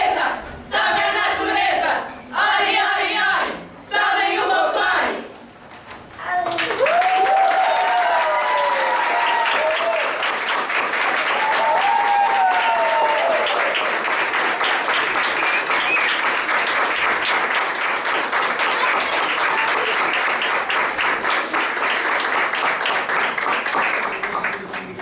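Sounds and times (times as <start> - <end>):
audience applauding: 6.3 - 25.0.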